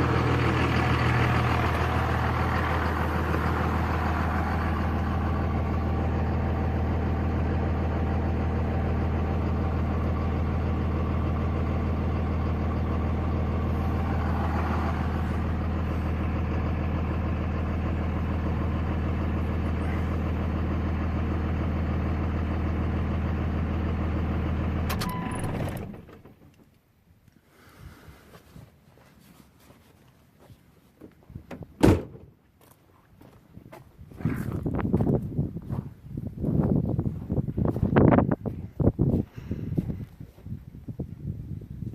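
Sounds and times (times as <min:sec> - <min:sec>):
diesel truck engine idling: 0:00.0 - 0:26.5.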